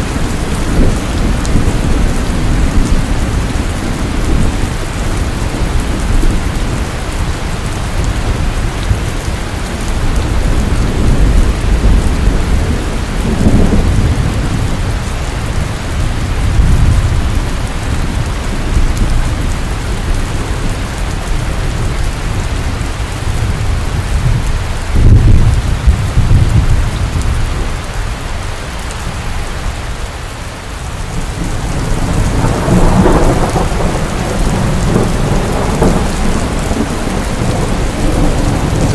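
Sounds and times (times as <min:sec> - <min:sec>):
rolling thunder: 0:00.0 - 0:27.8, 0:31.0 - 0:38.9
heavy rain falling: 0:00.0 - 0:38.9.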